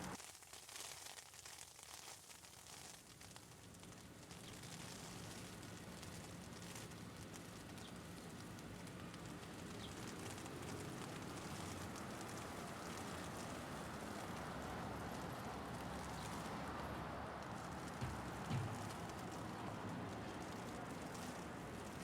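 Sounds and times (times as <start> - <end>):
hail pattering: 3.2 - 22.0
city traffic rumble: 6.4 - 22.0.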